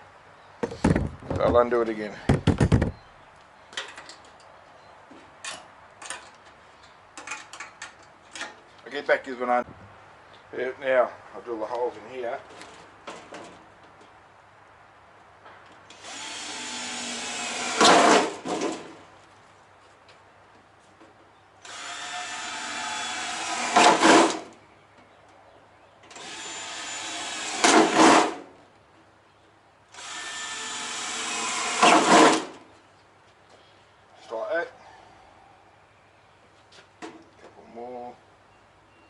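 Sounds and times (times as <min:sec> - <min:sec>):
power drill whirring: 0:15.9 - 0:18.4, 0:21.6 - 0:24.4, 0:26.1 - 0:28.4, 0:29.9 - 0:32.5.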